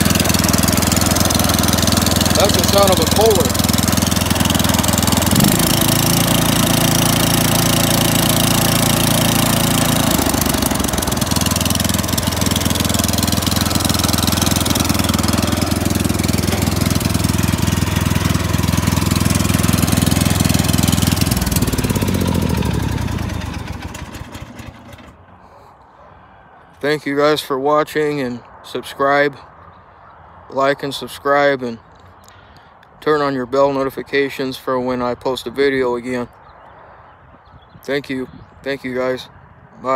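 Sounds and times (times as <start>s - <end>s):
lawn tractor engine running: 0.0s - 25.4s.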